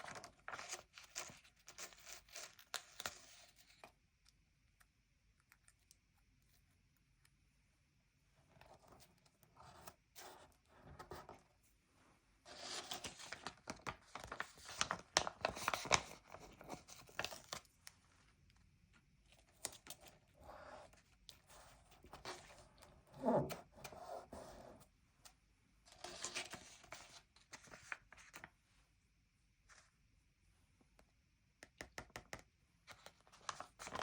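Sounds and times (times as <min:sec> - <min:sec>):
paper rustling: 0:12.5 - 0:17.8, 0:25.9 - 0:28.6, 0:32.9 - 0:34.0.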